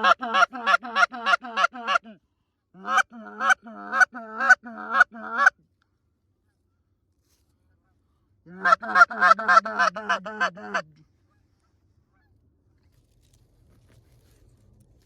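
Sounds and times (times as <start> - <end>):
goose honking: 0.0 - 2.1, 8.5 - 10.8.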